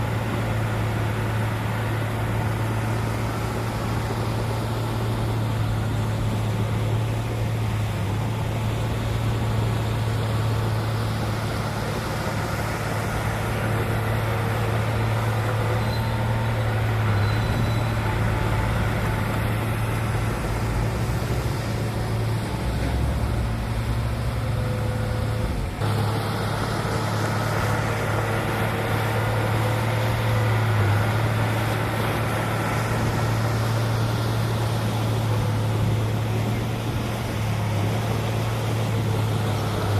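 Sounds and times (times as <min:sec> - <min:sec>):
heavy diesel engine drone: 0:00.0 - 0:39.9.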